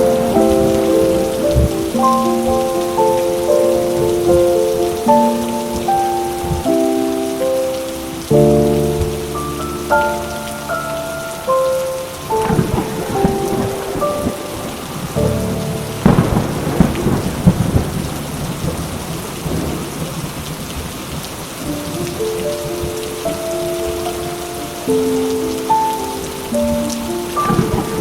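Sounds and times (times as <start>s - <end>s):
rolling thunder: 0.0s - 6.8s, 8.1s - 25.6s, 26.4s - 28.0s
soft held musical notes: 0.0s - 19.8s
steady rain: 0.0s - 28.0s.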